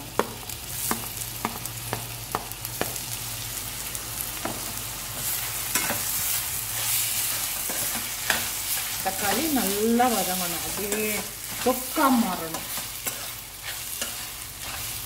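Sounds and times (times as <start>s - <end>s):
food sizzling in hot oil: 0.0s - 15.0s
stirring in a pan: 4.4s - 15.0s.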